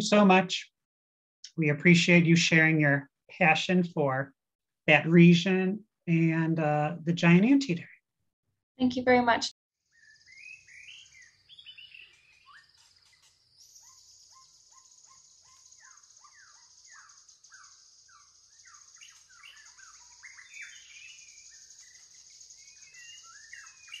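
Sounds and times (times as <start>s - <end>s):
whistled birdsong: 9.8s - 24.0s.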